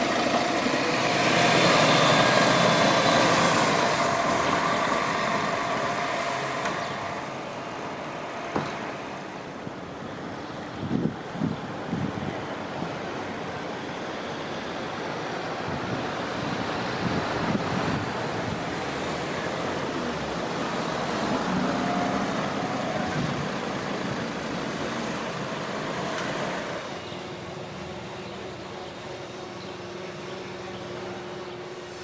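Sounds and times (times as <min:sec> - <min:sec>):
vehicle passing: 0:00.0 - 0:09.4, 0:16.2 - 0:28.0.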